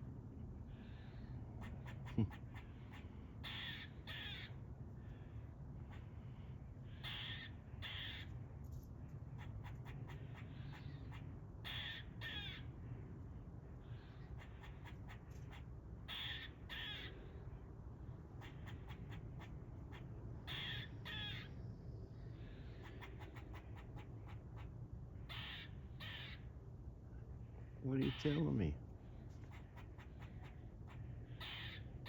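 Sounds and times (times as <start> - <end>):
squirrel chucks: 1.6 - 4.3, 22.8 - 26.2, 29.4 - 31.8
squirrel alarm barking: 1.6 - 4.5, 14.4 - 17.1, 18.4 - 21.5, 29.5 - 31.9.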